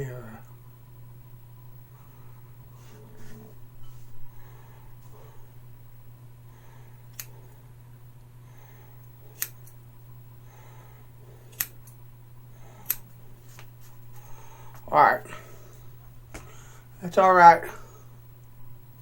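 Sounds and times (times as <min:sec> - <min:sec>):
steady low hum: 0:00.0 - 0:19.0
scissors snipping hair: 0:07.1 - 0:07.4, 0:09.3 - 0:09.8, 0:11.5 - 0:12.0, 0:12.8 - 0:13.7.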